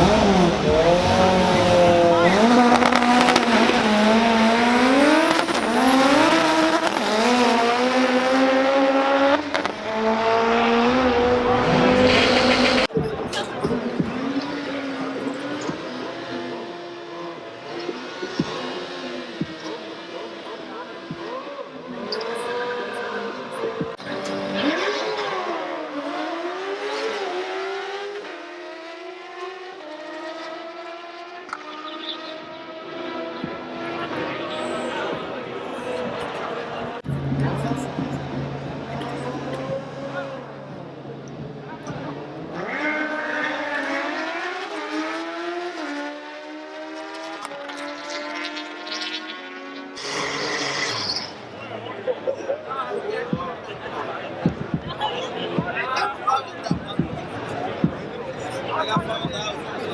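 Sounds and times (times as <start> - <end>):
gear upshifts: 0.0 - 16.0
car engine accelerating hard: 0.0 - 59.9.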